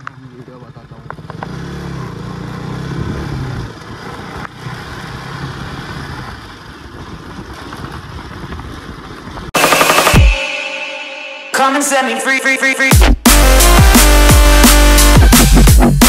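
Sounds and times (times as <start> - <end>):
motorcycle engine running: 0.0 - 9.5
loud electronic music: 9.6 - 16.0.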